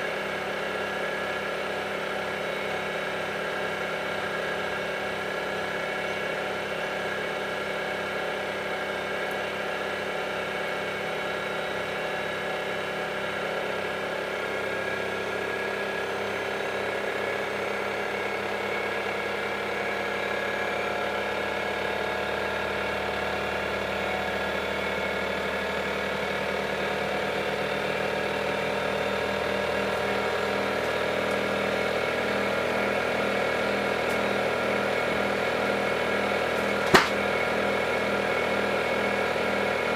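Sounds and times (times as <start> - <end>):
washing machine drum whirring: 27.0 - 39.9.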